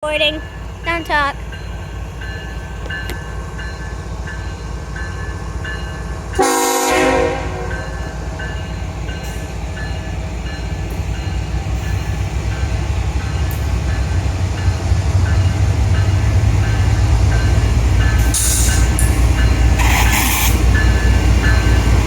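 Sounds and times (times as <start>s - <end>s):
crossing bell dinging: 0.0s - 19.8s, 20.6s - 22.0s
freight train rumbling past: 0.0s - 22.0s
train horn blast: 6.4s - 7.9s.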